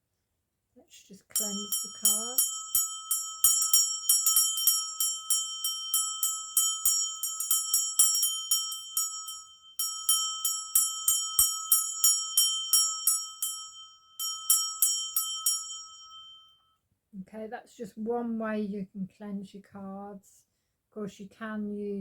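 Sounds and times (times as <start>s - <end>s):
small high-pitched bell ringing: 1.3s - 16.7s.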